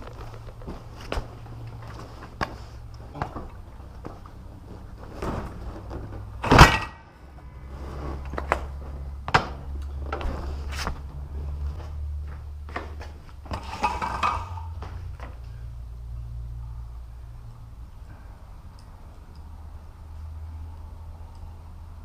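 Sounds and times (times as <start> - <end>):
motorcycle dropping onto wheels: 6.4 - 7.1.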